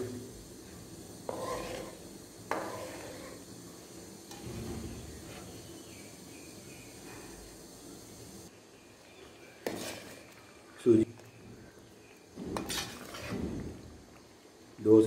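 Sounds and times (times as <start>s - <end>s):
spoon stirring in a pot: 1.2s - 3.5s, 9.5s - 10.6s, 11.2s - 13.7s.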